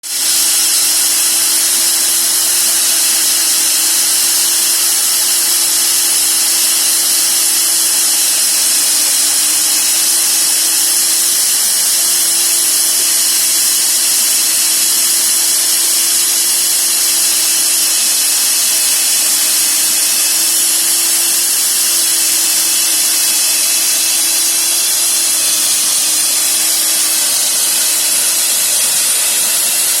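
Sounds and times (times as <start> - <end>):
electric drill whining: 0.0 - 30.0
grinding hiss: 0.0 - 30.0.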